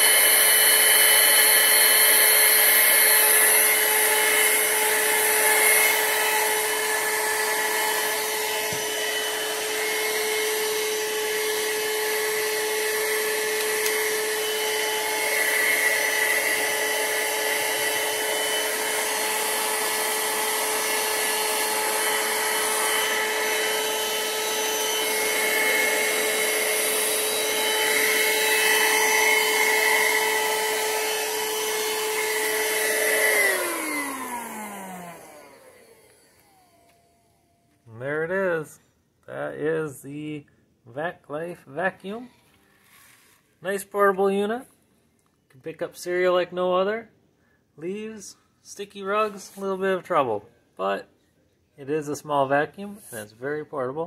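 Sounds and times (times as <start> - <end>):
handheld vacuum whining: 0.0 - 37.8.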